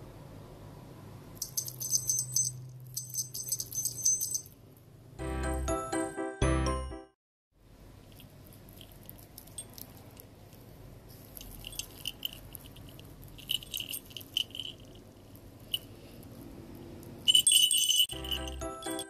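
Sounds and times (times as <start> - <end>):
faint steady background noise: 0.0 - 5.6, 7.5 - 19.0
brass bells jingling and clinking: 1.4 - 4.6, 11.3 - 16.0, 17.2 - 19.0.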